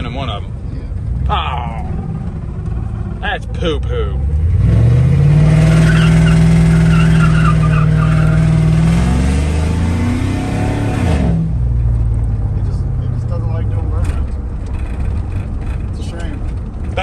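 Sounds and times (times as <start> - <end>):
engine at high revs: 1.7 - 11.5.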